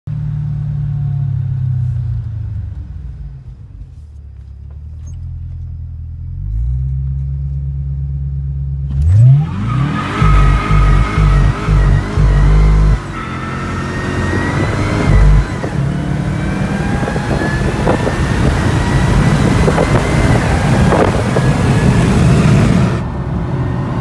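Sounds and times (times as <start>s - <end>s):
car engine revving: 7.9s - 24.0s.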